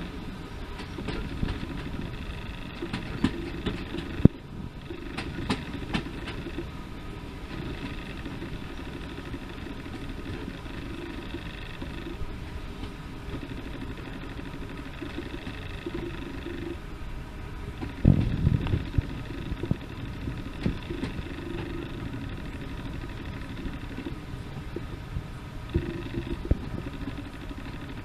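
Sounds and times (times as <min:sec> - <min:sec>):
locomotive engine idling: 0:00.0 - 0:28.0.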